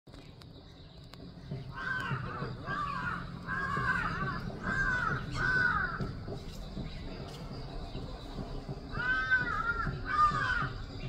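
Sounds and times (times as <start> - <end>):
bird calling: 0.1 - 11.0.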